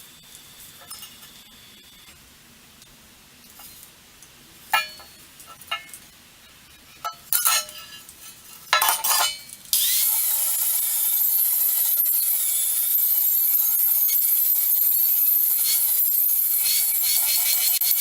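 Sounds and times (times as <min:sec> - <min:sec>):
steel parts clinking: 0:00.8 - 0:01.4, 0:04.7 - 0:06.1, 0:07.0 - 0:10.2.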